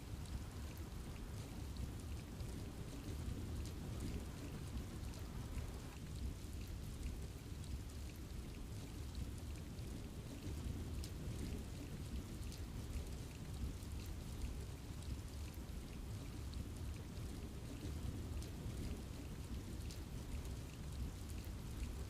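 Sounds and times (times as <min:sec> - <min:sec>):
rain hissing: 0:00.0 - 0:06.3.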